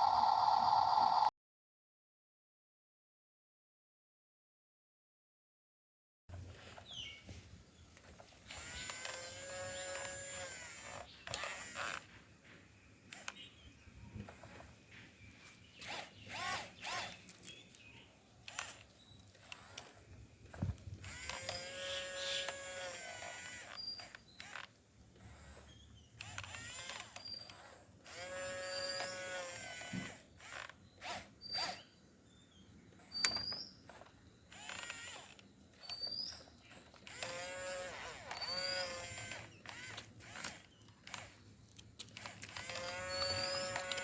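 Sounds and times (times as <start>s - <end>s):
small electric motors whining: 0.0s - 1.3s, 8.1s - 12.2s, 13.1s - 13.5s, 14.2s - 14.8s, 15.4s - 17.8s, 18.4s - 31.9s, 32.9s - 44.0s
sharp clicks and creaks: 13.1s - 13.5s, 15.8s - 28.3s, 32.9s - 44.0s.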